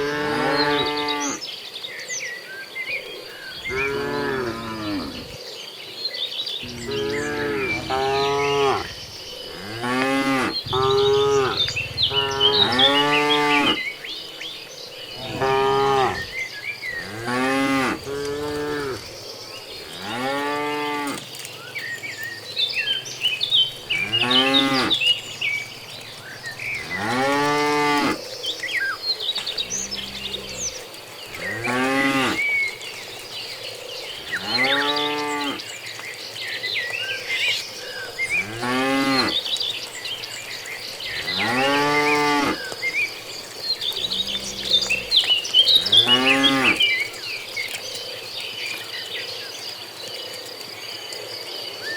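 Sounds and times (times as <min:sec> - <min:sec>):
cattle mooing: 0:03.7 - 0:05.4, 0:06.6 - 0:14.0, 0:15.2 - 0:16.4, 0:17.0 - 0:19.0, 0:19.9 - 0:21.3, 0:23.7 - 0:28.2, 0:29.4 - 0:32.4, 0:34.3 - 0:35.6, 0:38.4 - 0:39.4, 0:41.2 - 0:42.7, 0:43.9 - 0:46.9.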